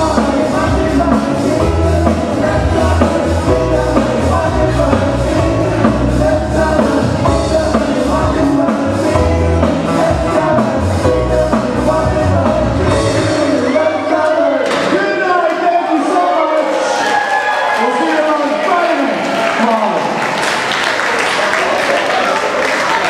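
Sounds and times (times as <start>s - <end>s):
moving bass line: 0.0s - 14.3s
live band playing: 0.0s - 14.6s
guitar: 0.0s - 15.4s.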